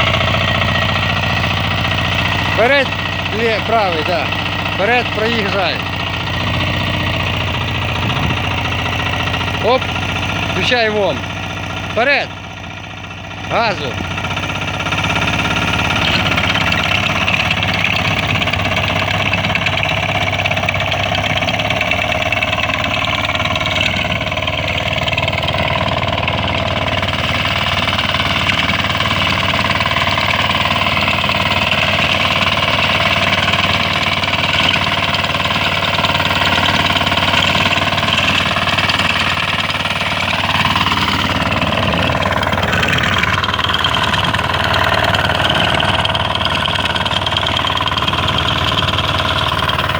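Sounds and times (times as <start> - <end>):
walk-behind tractor tilling: 0.0 - 49.9.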